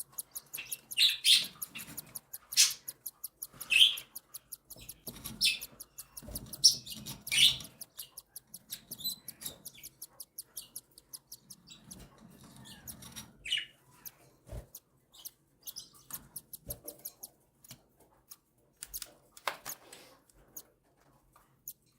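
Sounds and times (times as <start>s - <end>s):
chicks chirping: 0.0s - 17.4s.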